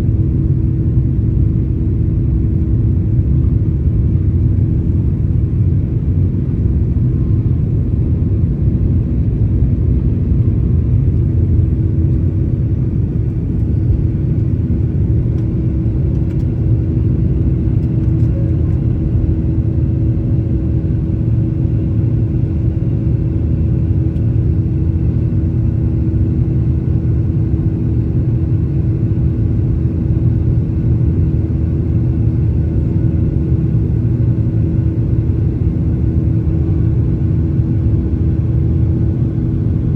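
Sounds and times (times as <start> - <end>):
jet engines roaring in cabin: 0.0 - 39.9.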